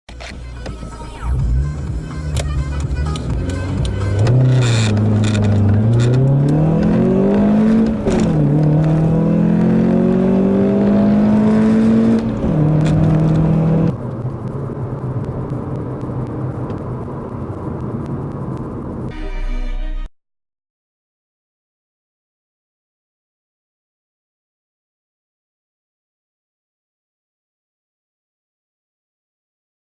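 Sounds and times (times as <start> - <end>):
car engine accelerating hard: 1.2 - 19.1
steady rushing noise: 11.6 - 19.2.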